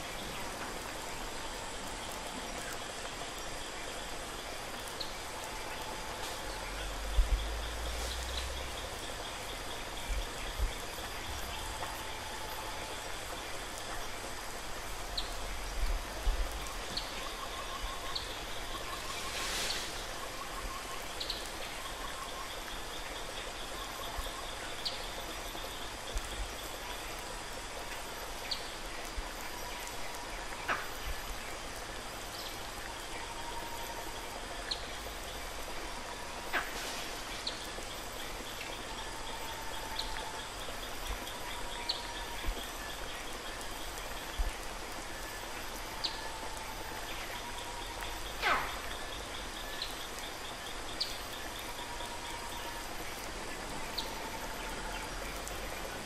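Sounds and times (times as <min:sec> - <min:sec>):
indoor background hiss: 0:00.0 - 0:56.0.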